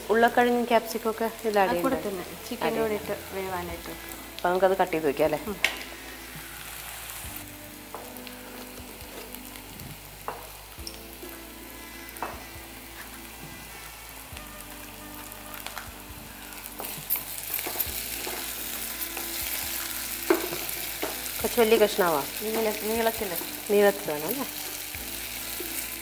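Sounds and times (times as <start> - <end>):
chicken sizzling in hot oil: 0.0 - 26.0.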